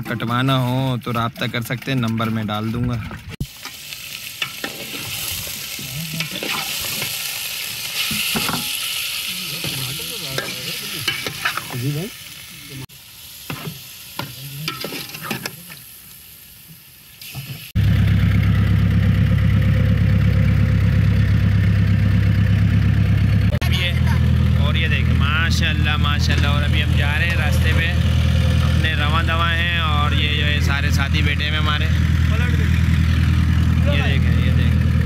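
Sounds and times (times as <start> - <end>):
food sizzling in a pot: 3.4 - 17.8
engine humming: 17.8 - 35.0.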